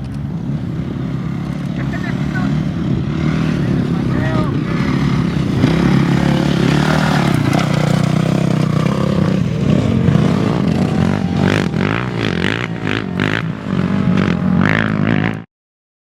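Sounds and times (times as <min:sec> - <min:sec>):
racing vehicle engine running: 0:00.0 - 0:15.4.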